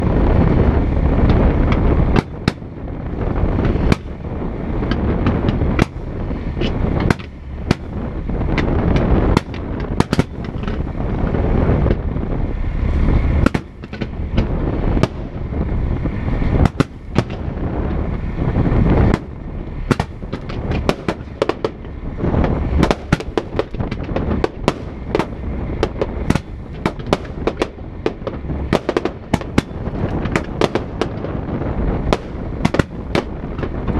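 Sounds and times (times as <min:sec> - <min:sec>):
fireworks banging and crackling: 0:00.0 - 0:12.0, 0:13.4 - 0:15.7, 0:16.5 - 0:18.1, 0:18.8 - 0:33.9
fireworks rumbling: 0:00.0 - 0:33.9.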